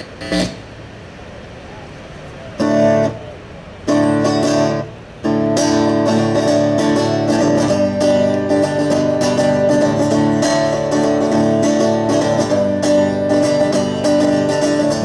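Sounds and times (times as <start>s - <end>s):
guitar strumming chords: 2.6s - 3.2s, 3.9s - 15.0s.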